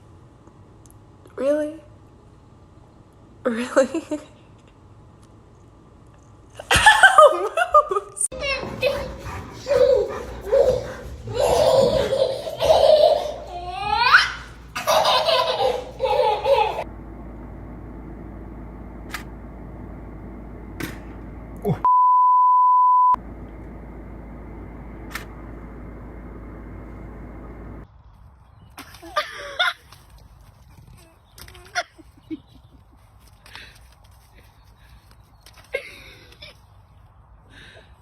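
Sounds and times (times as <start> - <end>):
low steady hum: 0.0 - 22.0, 22.6 - 28.1
high-pitched laughter and squealing: 6.6 - 16.8
pure beep tone: 21.9 - 23.2.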